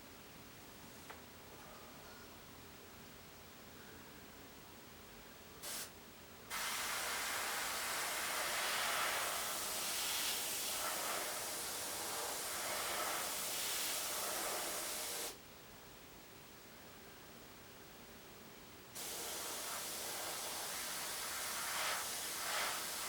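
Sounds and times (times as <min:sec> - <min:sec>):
airbrush spraying hiss: 0:05.6 - 0:05.9, 0:06.5 - 0:15.4, 0:19.0 - 0:23.0.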